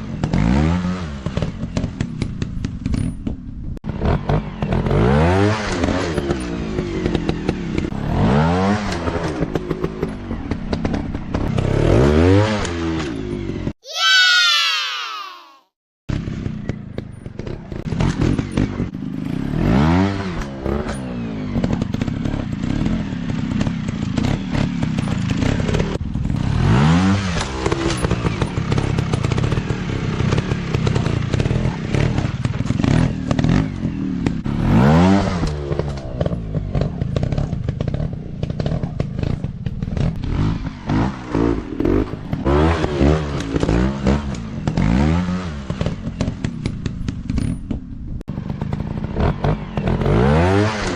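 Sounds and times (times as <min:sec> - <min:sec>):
dirt bike engines revving: 0:48.3 - 0:50.9.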